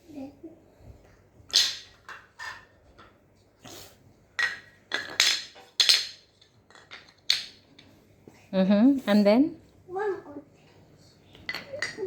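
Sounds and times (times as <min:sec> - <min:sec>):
toy train track pieces clattering: 0:04.4 - 0:07.6.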